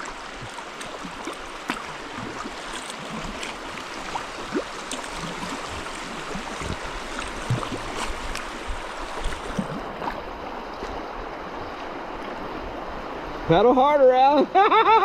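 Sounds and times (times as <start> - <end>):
small splashes and drips: 0.0 - 10.2
river water rushing: 0.0 - 13.6.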